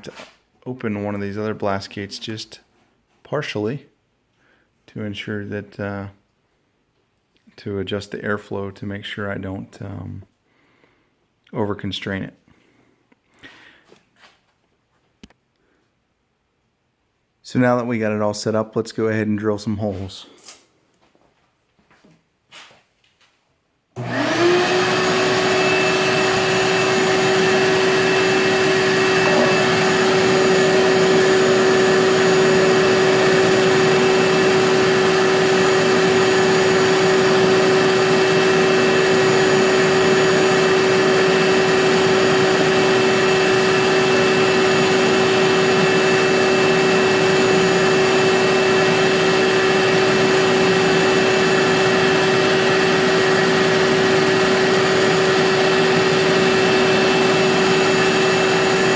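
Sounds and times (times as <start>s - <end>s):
shop vac motor whining: 24.0s - 58.9s.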